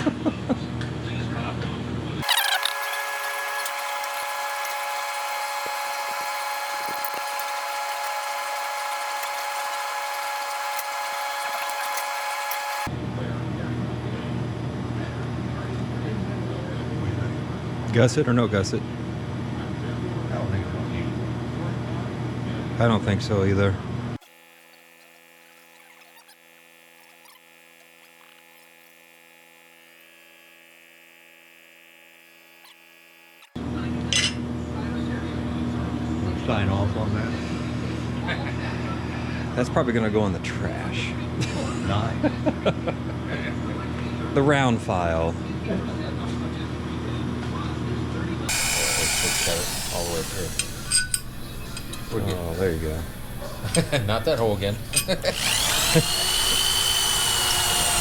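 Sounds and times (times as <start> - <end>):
power tool motor whining: 2.2 - 12.9, 24.2 - 33.6, 48.5 - 58.0.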